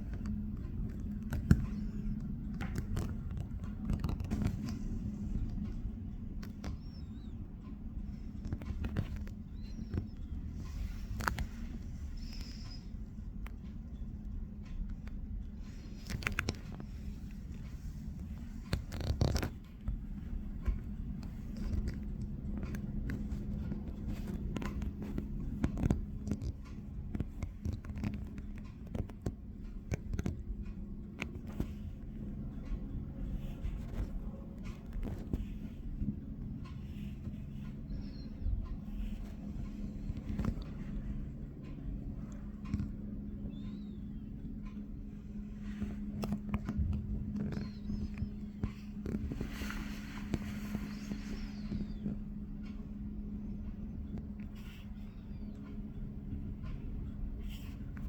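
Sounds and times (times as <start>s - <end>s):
scratching on microphone: 0.0s - 58.0s
distant helicopter hovering: 15.4s - 58.0s.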